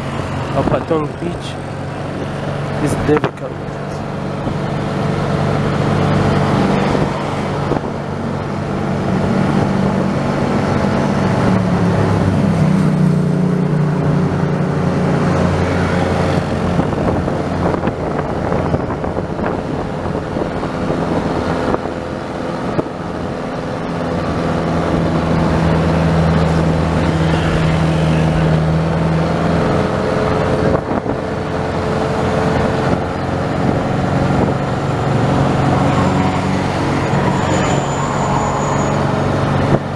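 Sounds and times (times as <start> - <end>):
tyre and road noise: 0.0 - 39.9
vehicle engine running: 0.0 - 39.9.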